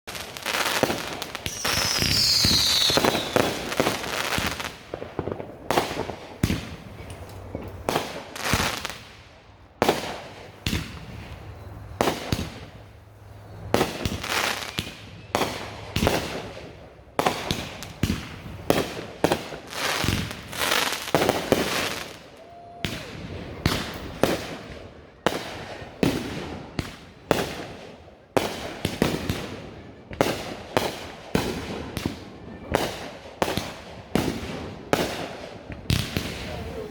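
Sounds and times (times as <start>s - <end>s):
fireworks bangs: 0.1s - 36.9s
falling firework whistle: 0.3s - 7.1s, 13.5s - 16.5s, 19.8s - 26.2s.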